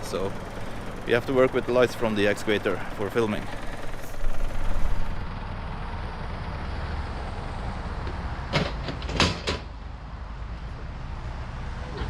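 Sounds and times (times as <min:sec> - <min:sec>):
excavator engine running: 0:00.0 - 0:07.8.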